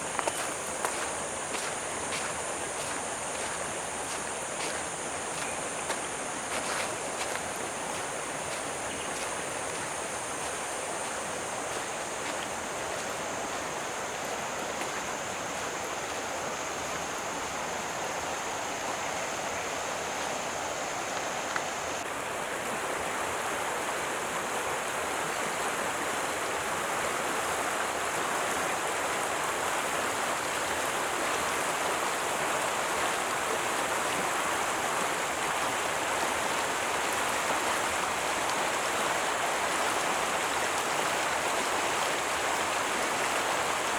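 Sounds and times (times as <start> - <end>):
stream of running water: 0.0 - 43.9.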